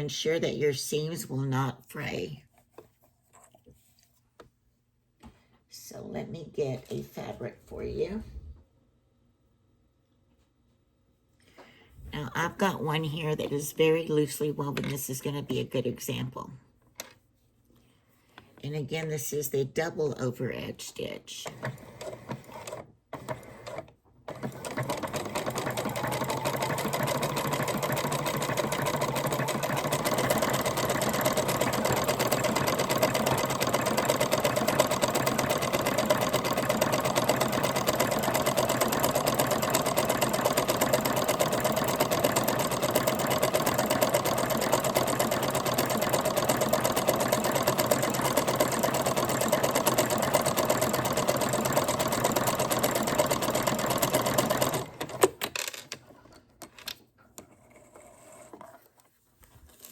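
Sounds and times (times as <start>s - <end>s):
sewing machine running: 21.4s - 55.5s.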